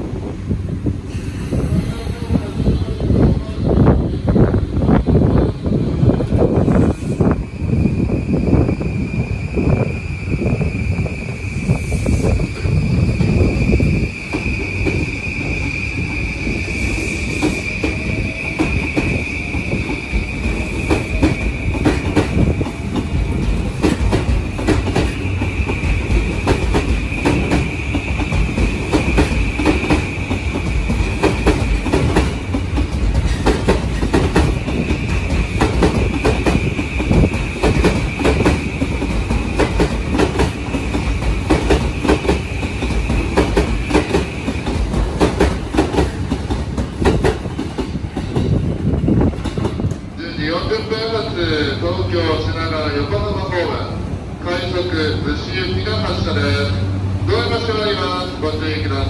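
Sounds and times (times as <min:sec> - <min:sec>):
train rumble: 0:00.0 - 0:59.0
train wheels clicking over joints: 0:11.8 - 0:50.2.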